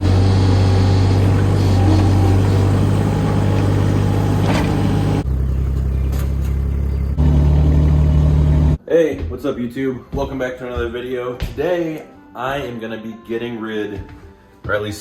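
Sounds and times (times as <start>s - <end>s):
excavator engine humming: 0.0s - 8.8s.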